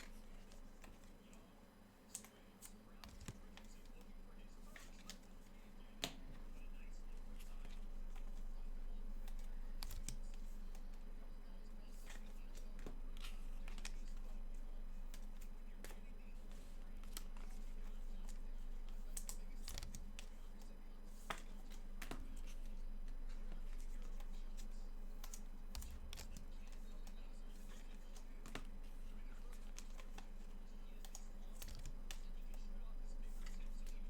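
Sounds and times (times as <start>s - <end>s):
light clicks and taps: 0.0s - 34.0s
steady low hum: 0.0s - 34.0s.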